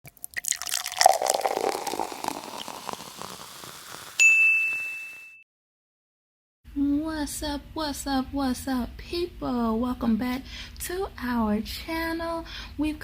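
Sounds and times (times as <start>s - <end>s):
bright ding: 4.2s - 5.4s.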